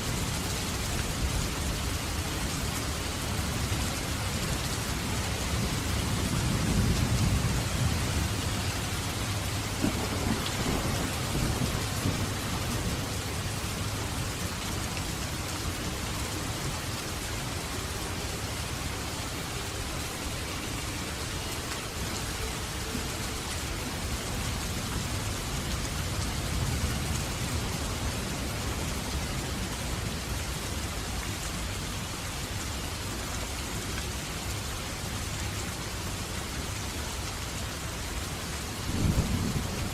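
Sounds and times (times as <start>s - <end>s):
steady rain: 0.0s - 39.9s
thunder rumble: 5.5s - 13.6s, 38.8s - 39.9s.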